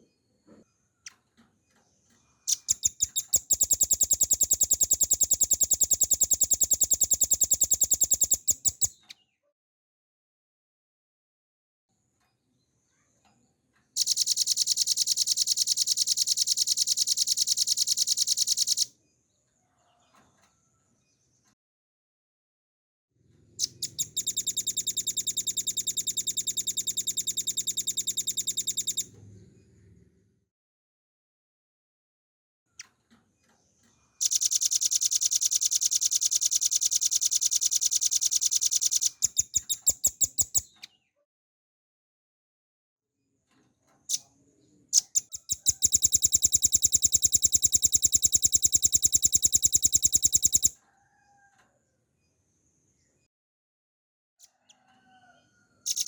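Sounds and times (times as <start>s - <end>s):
bird singing fast trill: 2.5s - 9.1s, 14.0s - 18.9s, 23.6s - 29.1s, 34.2s - 40.9s, 45.0s - 50.7s.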